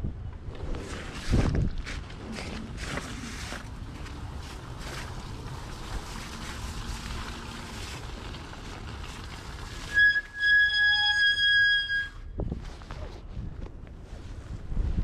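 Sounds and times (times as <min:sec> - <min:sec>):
wind: 0:00.0 - 0:15.0
bike brake squealing: 0:09.9 - 0:12.2.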